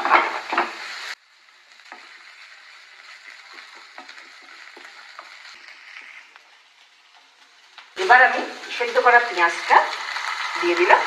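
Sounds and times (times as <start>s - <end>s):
wooden spatula scraping a pan: 0.0s - 1.0s, 3.0s - 7.8s
onions sizzling in oil: 0.0s - 11.0s.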